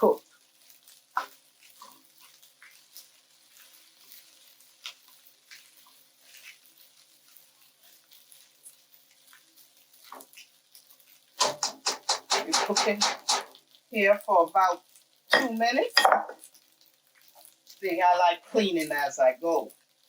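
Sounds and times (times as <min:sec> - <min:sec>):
rice sizzling in a wok: 0:00.0 - 0:20.0
utensil scraping and tapping pan: 0:11.4 - 0:13.6, 0:15.4 - 0:16.4.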